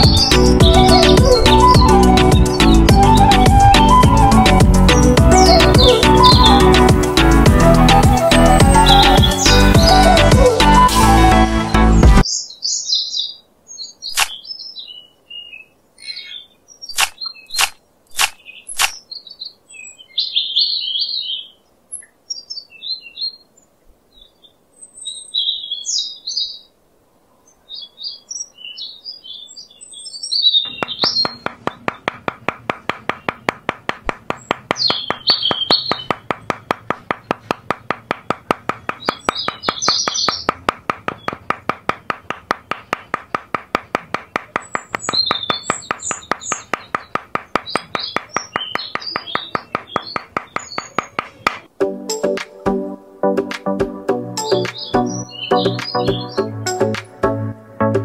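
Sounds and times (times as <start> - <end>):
small birds chirping: 0.0 - 10.8, 11.7 - 52.4, 53.6 - 57.2
sharp clicks: 14.1 - 14.4, 16.9 - 19.0, 30.7 - 51.7
fast steady ticking pulse: 30.7 - 51.6.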